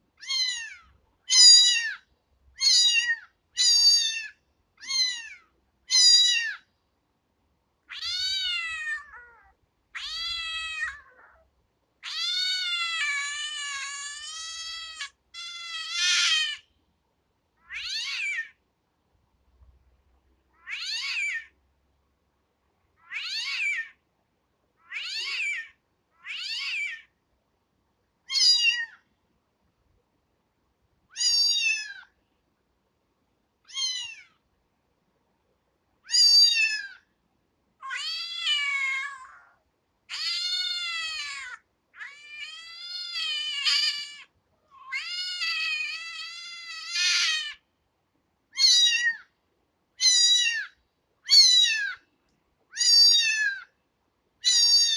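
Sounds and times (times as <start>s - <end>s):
kitten meowing: 0.2s - 2.0s, 2.6s - 6.6s, 7.9s - 11.4s, 12.0s - 16.6s, 17.6s - 18.6s, 20.6s - 21.5s, 23.0s - 24.0s, 24.8s - 27.1s, 28.3s - 29.0s, 31.1s - 32.1s, 33.7s - 34.3s, 36.1s - 37.0s, 37.8s - 47.6s, 48.6s - 49.3s, 50.0s - 52.0s, 52.7s - 53.7s, 54.4s - 54.9s.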